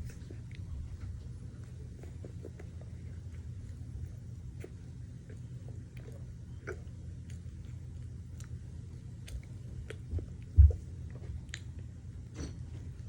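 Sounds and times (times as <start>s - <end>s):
person chewing food: 0.0s - 12.0s
dull low thump: 10.1s - 10.8s.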